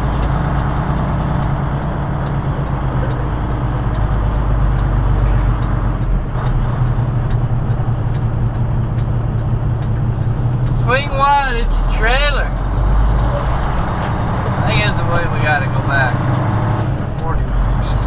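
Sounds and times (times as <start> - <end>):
faint even ticking: 0.0 - 11.0
diesel truck engine humming: 0.0 - 18.0.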